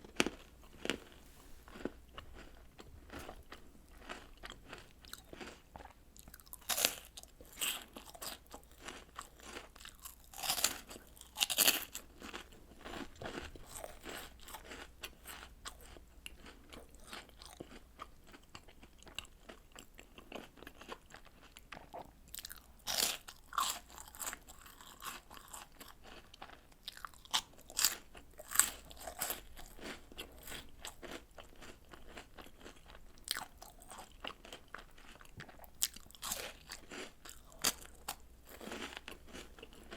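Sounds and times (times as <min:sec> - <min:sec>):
crunchy bites: 0:00.0 - 0:19.6, 0:21.8 - 0:39.9.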